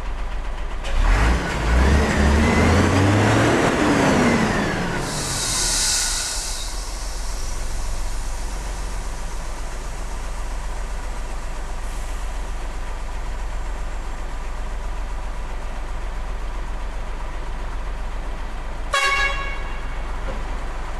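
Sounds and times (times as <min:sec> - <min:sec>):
high hiss bursts: 0:05.0 - 0:10.5.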